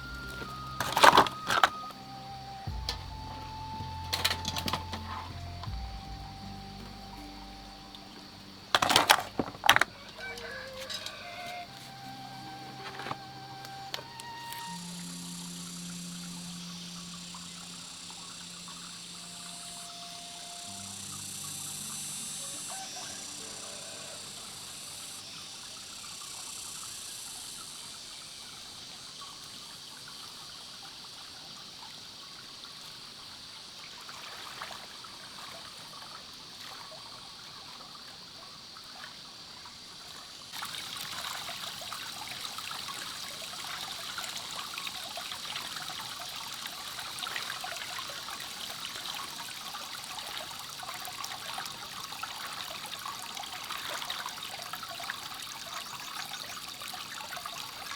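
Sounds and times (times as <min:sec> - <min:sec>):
water trickling: 0:00.0 - 0:57.9.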